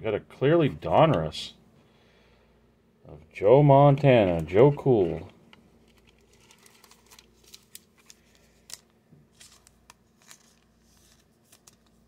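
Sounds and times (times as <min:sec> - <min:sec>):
trading cards sliding and shuffling: 0:04.2 - 0:12.0.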